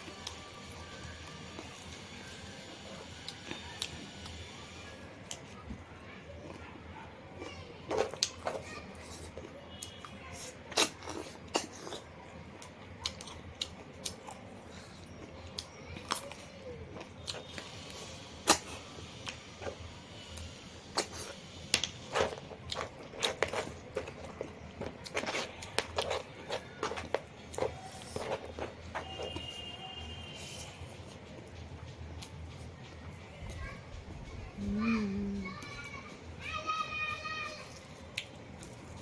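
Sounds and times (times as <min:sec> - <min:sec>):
person chewing and biting: 0:07.9 - 0:19.8, 0:20.9 - 0:29.6.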